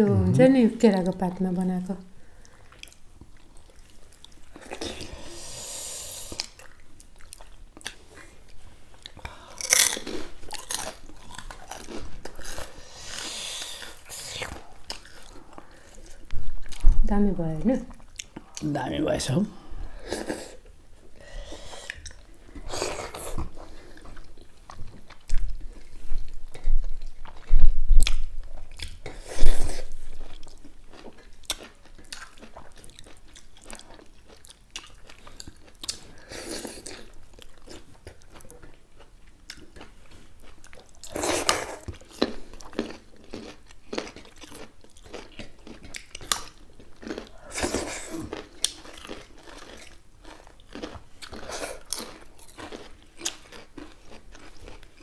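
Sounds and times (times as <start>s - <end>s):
chewing and crunching food: 2.2s - 5.4s, 6.1s - 17.1s, 17.7s - 18.7s, 19.9s - 55.0s.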